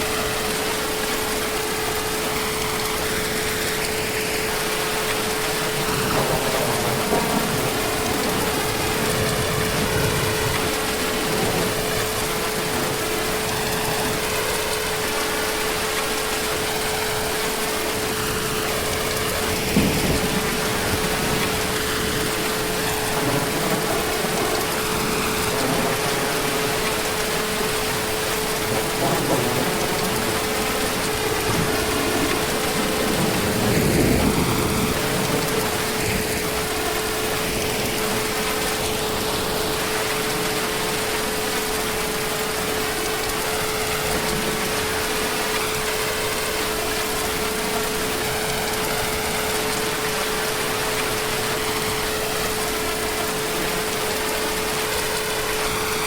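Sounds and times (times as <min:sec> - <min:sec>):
heavy rain falling: 0:00.0 - 0:56.0
distant thunder rumbling: 0:05.3 - 0:15.3, 0:16.7 - 0:41.1.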